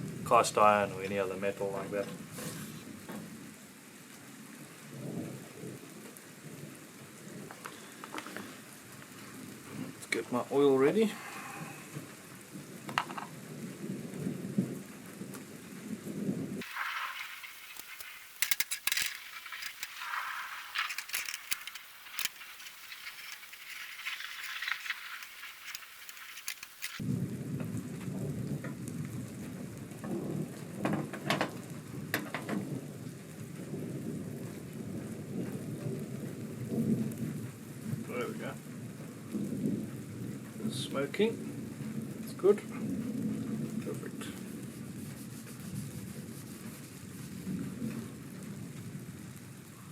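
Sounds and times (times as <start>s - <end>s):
rain falling: 0.0s - 49.9s
thunder rumble: 11.1s - 49.8s
metallic clinks and rattling: 16.6s - 27.0s.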